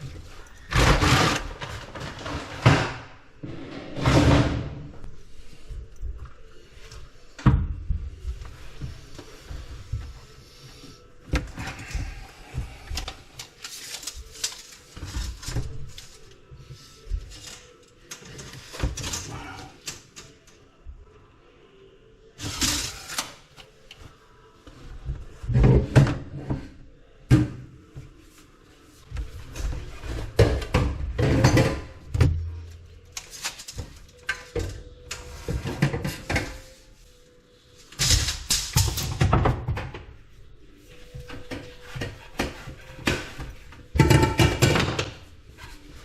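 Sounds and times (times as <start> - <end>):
tools and pipe parts clattering: 0.0 - 3.1, 17.1 - 20.6, 41.0 - 46.0.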